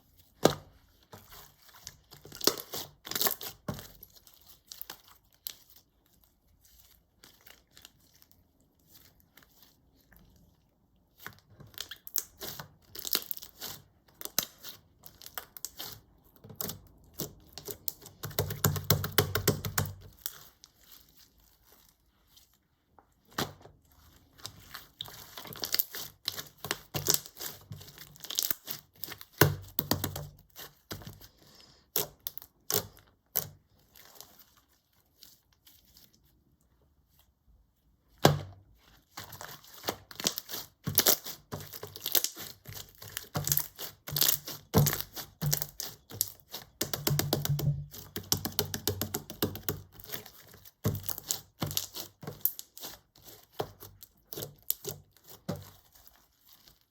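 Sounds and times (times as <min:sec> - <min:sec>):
slime crackling and popping: 0:01.3 - 0:06.0, 0:11.1 - 0:22.0, 0:24.3 - 0:31.3, 0:31.9 - 0:34.4, 0:39.0 - 0:56.9.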